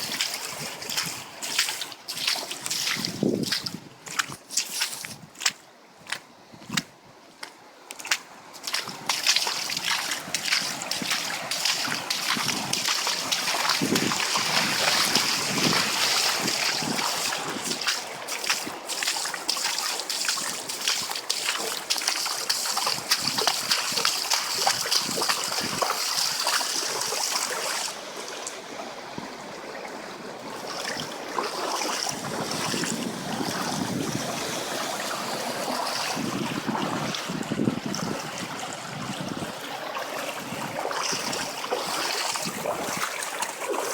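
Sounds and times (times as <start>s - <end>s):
floodwater splashing and rushing: 0.0s - 6.2s, 8.0s - 43.9s.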